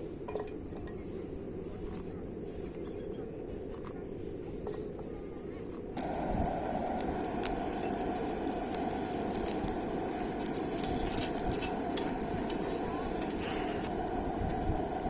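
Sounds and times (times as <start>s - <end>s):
louder hiss: 6.0s - 15.0s
steak sizzling in a pan: 6.0s - 15.0s.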